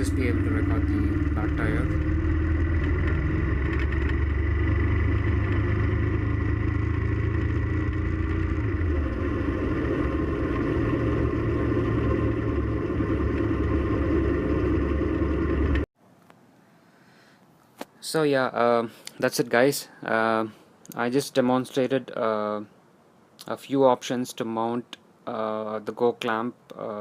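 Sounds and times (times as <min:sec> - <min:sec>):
motorcycle engine running: 0:00.0 - 0:15.9
wind and road noise: 0:00.0 - 0:15.9.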